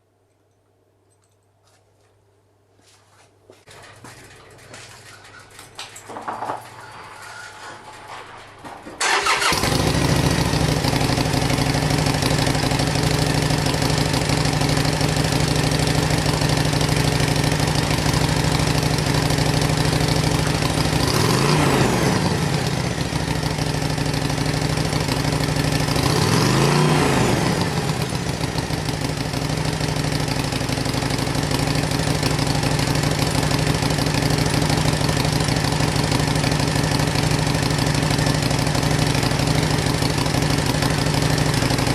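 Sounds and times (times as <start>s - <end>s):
motorcycle engine starting and idling: 3.7s - 41.9s
motorcycle engine revving: 9.0s - 41.9s.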